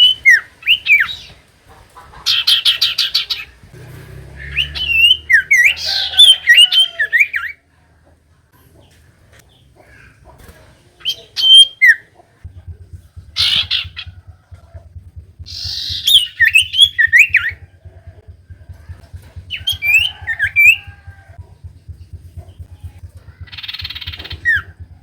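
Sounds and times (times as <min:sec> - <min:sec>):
bird whistled calls: 0:00.0 - 0:01.3, 0:04.4 - 0:07.6, 0:15.4 - 0:18.1, 0:19.4 - 0:21.1, 0:23.4 - 0:25.0
bird harsh chattering: 0:02.0 - 0:07.6, 0:13.2 - 0:21.4, 0:22.2 - 0:25.0
low buzzing hum: 0:12.4 - 0:25.0.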